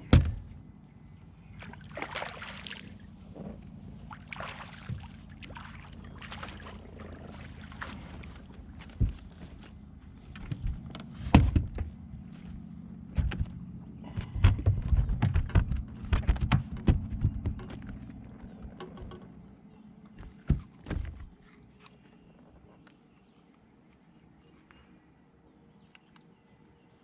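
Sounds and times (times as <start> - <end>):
thumps and knocks on boat: 0.0 - 0.6, 4.7 - 5.3, 7.6 - 12.0, 13.1 - 19.4, 20.1 - 21.4
low steady hum: 0.0 - 27.0.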